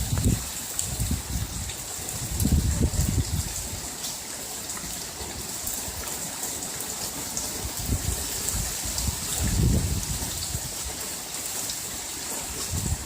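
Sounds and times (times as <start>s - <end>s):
wind buffeting microphone: 0.0s - 3.9s, 7.6s - 11.0s, 12.4s - 13.0s
heavy rain hissing: 0.0s - 13.0s.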